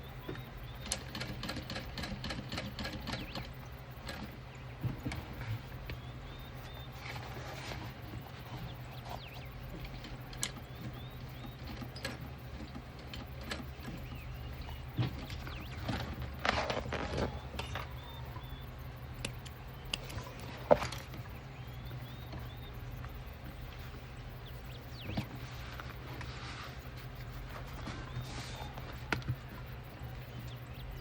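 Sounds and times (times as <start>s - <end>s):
faint bird chirps: 0.0s - 31.0s
steady low hum: 0.0s - 31.0s
light clicks: 17.5s - 23.7s.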